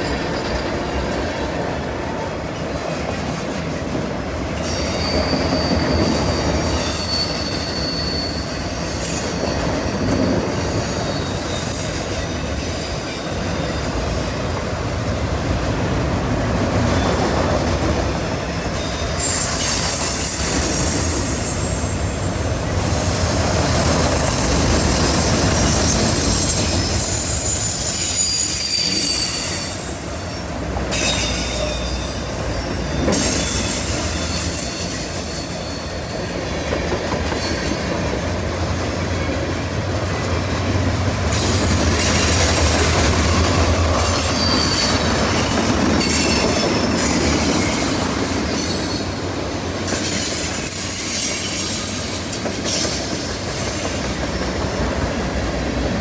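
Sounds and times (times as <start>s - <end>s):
steel wheels rumbling on rail: 0.0s - 56.0s
wheel flange squeal: 4.6s - 14.0s, 16.9s - 36.4s, 43.2s - 51.9s.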